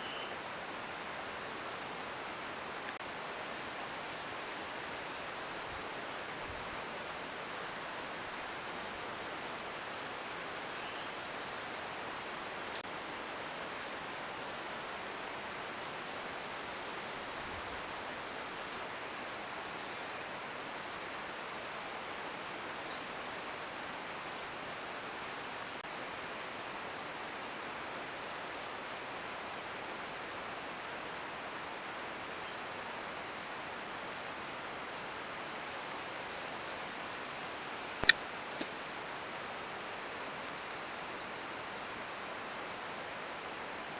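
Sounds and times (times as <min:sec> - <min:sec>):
sharp click: 0:38.0 - 0:38.7.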